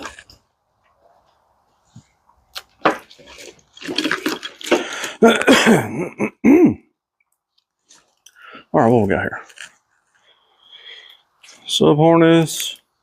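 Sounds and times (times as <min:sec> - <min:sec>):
packaging rustling and scraping: 0:02.8 - 0:05.1.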